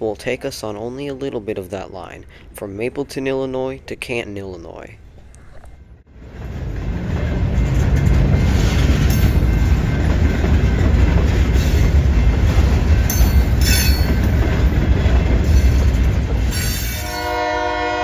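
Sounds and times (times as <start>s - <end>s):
diesel locomotive drone: 5.0s - 18.0s
train wheels clattering on rails: 6.2s - 17.5s.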